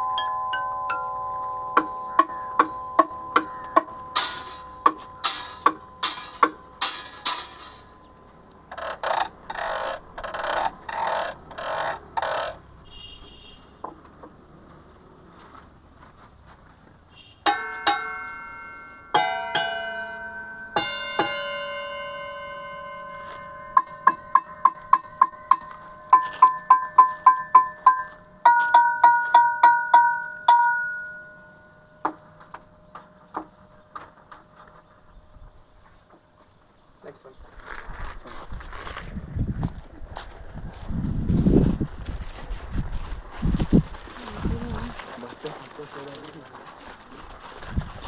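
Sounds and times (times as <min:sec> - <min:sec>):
sharp percussion strikes: 0:00.0 - 0:08.0, 0:17.5 - 0:35.2
bell-like ringing strikes: 0:00.0 - 0:08.2, 0:17.5 - 0:34.4
short rattling bursts: 0:04.2 - 0:07.9.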